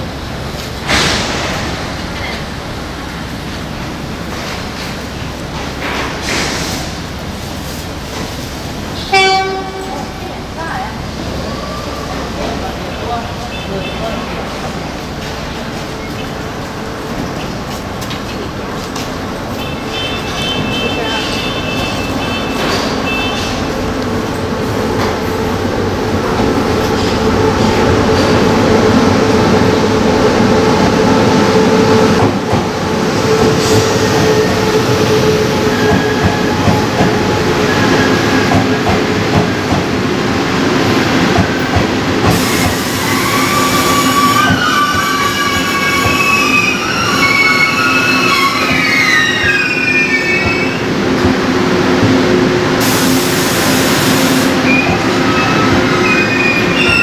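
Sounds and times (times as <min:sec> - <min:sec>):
train wheels rumbling on rails: 0:00.0 - 0:57.0
wheel and brake squeal: 0:42.9 - 0:50.8, 0:54.6 - 0:57.0.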